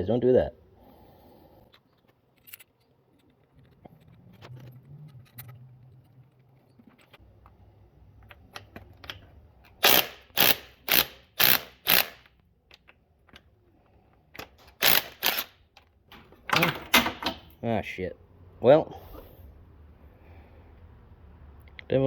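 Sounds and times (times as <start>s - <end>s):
tools and parts clicking: 1.7s - 7.2s, 8.2s - 17.6s
socket ratchet clicking: 8.6s - 13.0s, 14.4s - 15.6s.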